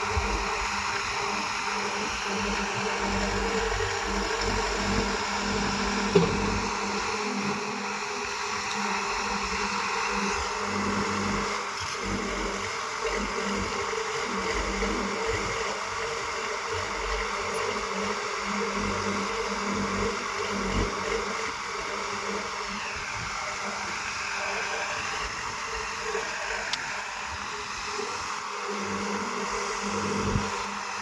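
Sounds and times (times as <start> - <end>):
diesel machinery engine droning: 0.0 - 15.5.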